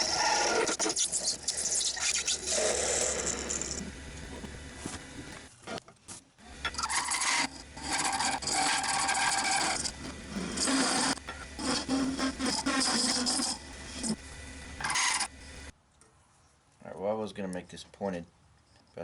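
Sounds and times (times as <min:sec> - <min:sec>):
lathe tool scraping wood: 0:00.0 - 0:05.8, 0:06.4 - 0:15.7
lathe motor humming: 0:06.5 - 0:15.7.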